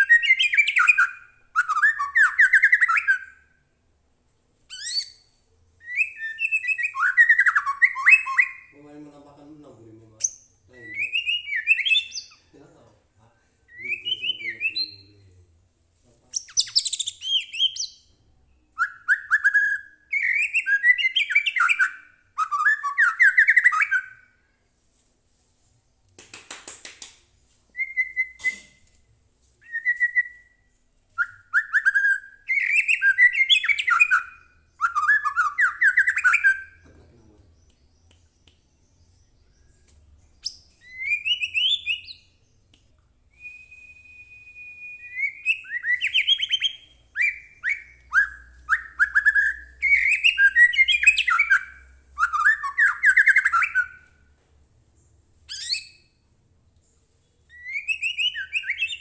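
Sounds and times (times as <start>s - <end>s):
songbird whistling and warbling: 0.0s - 3.4s, 4.7s - 8.8s, 10.2s - 12.6s, 13.7s - 15.2s, 16.3s - 18.1s, 18.7s - 24.3s, 27.7s - 29.0s, 29.6s - 42.6s, 43.3s - 54.1s, 55.5s - 56.2s, 57.5s - 59.0s.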